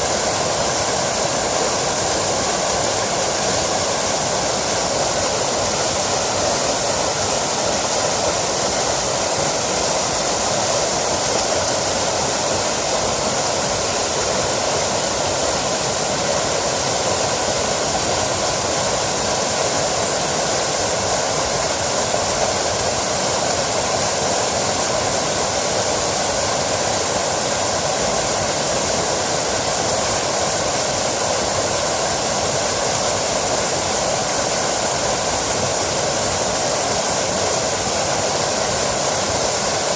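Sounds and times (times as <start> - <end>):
stream over small waterfall: 0.0 - 39.9.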